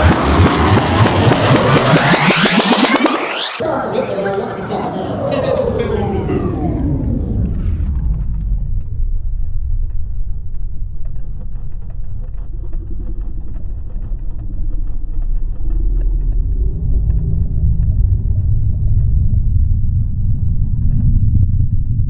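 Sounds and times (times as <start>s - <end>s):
jet engine rumbling past: 0.0s - 22.0s.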